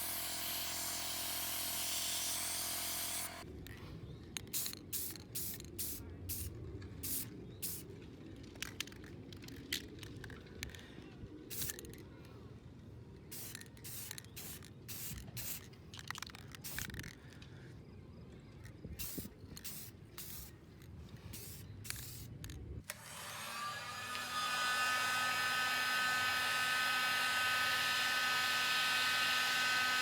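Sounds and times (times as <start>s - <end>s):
short hissing spray bursts: 13.3s - 15.7s, 19.0s - 20.5s, 21.2s - 22.4s.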